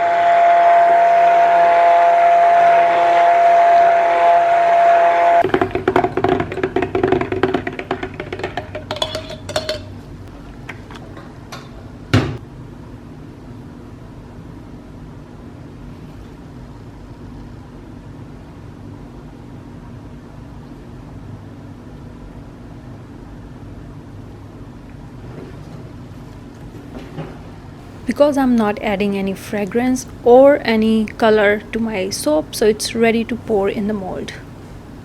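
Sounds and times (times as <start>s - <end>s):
low steady hum: 19.6s - 35.0s.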